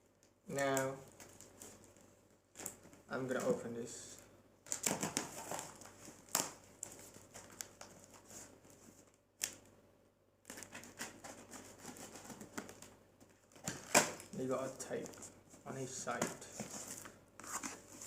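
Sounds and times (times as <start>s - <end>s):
packaging rustling and scraping: 4.7s - 9.2s, 10.4s - 18.0s.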